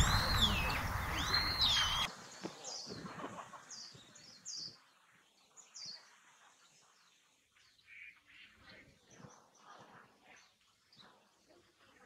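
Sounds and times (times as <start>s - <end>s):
faint bird chirps: 0.0s - 4.9s, 7.6s - 11.8s.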